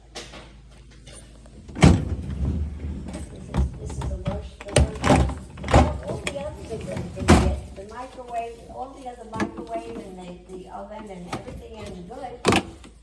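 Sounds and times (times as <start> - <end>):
freezer drawer clunking: 1.6 - 7.8, 9.3 - 10.1, 11.3 - 13.0.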